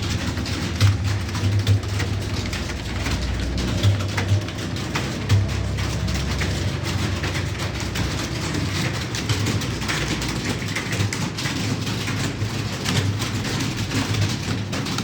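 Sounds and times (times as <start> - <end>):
keyboards typing clatter: 0.0 - 15.0.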